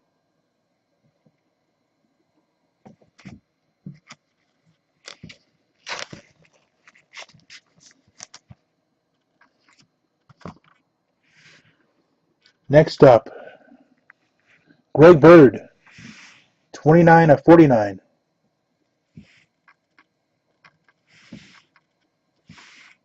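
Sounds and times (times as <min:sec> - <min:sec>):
plastic card sleeves crinkling: 0:03.0 - 0:10.8.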